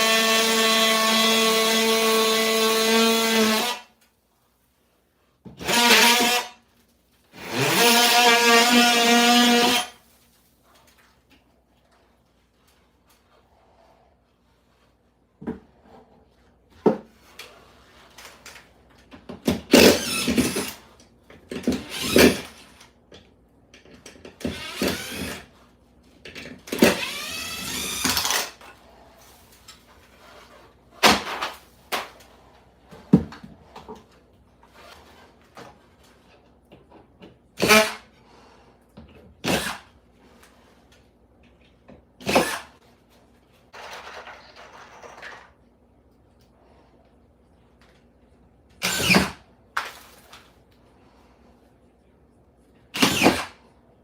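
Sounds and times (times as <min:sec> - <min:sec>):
power drill whining: 0:05.6 - 0:06.6, 0:07.4 - 0:10.0, 0:19.7 - 0:20.8, 0:21.7 - 0:22.8, 0:24.4 - 0:25.5, 0:26.7 - 0:28.6, 0:48.8 - 0:49.4, 0:53.0 - 0:53.6.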